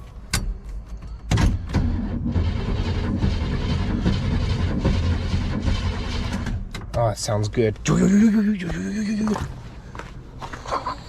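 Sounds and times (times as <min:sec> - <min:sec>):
starter cranking engine: 0:01.7 - 0:06.7.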